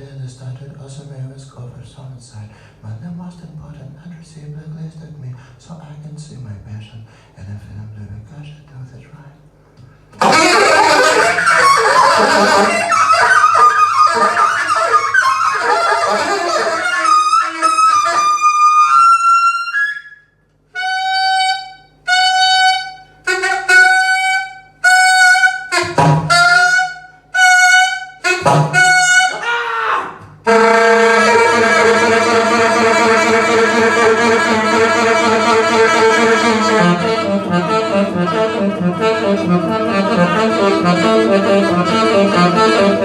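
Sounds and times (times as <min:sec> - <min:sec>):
instrumental music with brass lead: 0:10.2 - 0:19.5, 0:20.8 - 0:29.4, 0:30.4 - 0:43.0.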